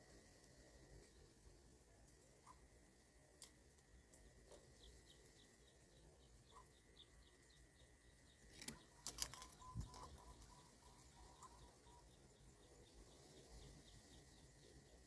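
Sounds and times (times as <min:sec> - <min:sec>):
thin steady whine: 0:00.0 - 0:15.0
soft high chirps: 0:06.4 - 0:14.3.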